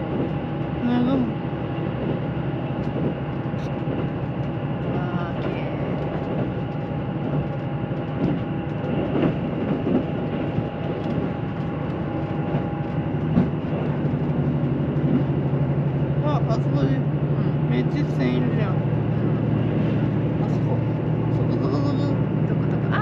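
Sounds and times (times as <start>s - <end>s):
diesel train engine drone: 0.0s - 23.0s
faint clicks from rails: 2.8s - 15.9s.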